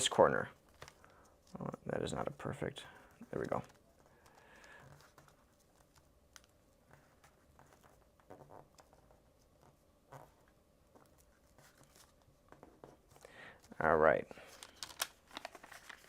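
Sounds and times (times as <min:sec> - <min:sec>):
paper rustling: 0:00.6 - 0:02.3, 0:02.9 - 0:13.8, 0:14.4 - 0:16.0
paper folding clicks: 0:14.5 - 0:16.0.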